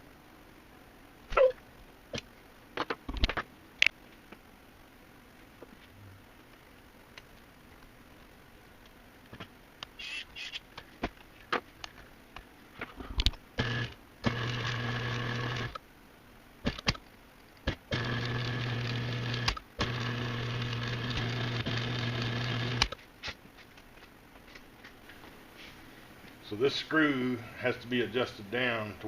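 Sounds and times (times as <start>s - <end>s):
sharp clicks and knocks: 2.1s - 4.4s, 16.6s - 17.9s
key duplicator motor humming: 13.6s - 15.8s, 17.7s - 22.9s.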